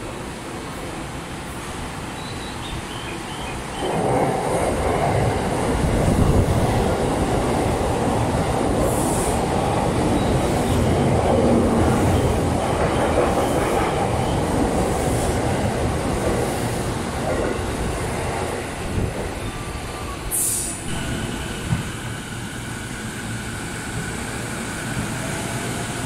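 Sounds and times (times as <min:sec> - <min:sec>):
train wheels rumbling on rails: 0:00.0 - 0:26.0
brief high hiss: 0:20.3 - 0:21.5.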